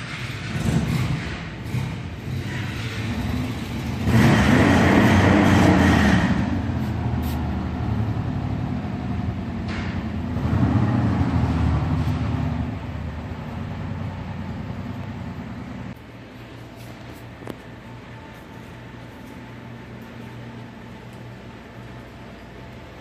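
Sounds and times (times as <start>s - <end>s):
motorcycle engine revving: 0.0s - 7.1s.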